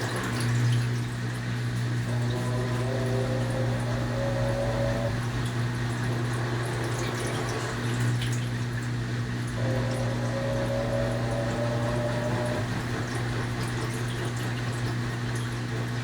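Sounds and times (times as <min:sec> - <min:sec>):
washing machine running: 0:00.0 - 0:16.0
rising whine: 0:02.0 - 0:06.8, 0:09.6 - 0:14.2.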